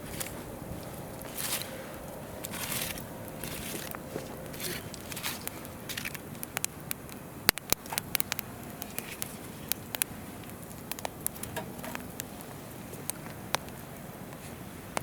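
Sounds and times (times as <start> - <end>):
river flowing: 0.0 - 11.0
campfire crackling: 0.0 - 15.0.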